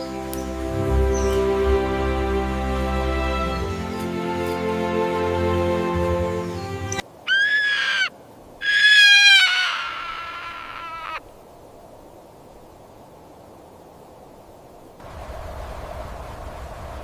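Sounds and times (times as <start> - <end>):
faint background hiss: 0.0 - 17.0
bird screaming calls: 7.3 - 11.2.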